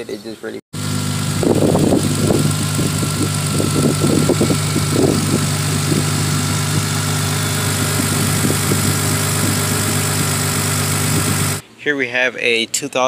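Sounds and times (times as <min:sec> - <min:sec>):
car engine idling: 0:00.8 - 0:11.6.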